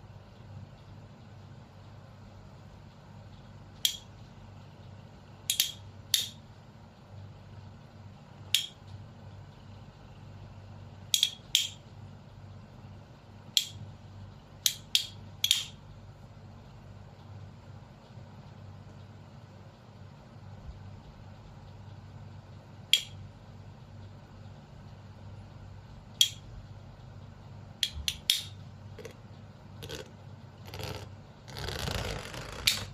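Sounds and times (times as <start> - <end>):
low steady hum: 0.0 - 32.9
toy parts clicking: 5.5 - 6.3.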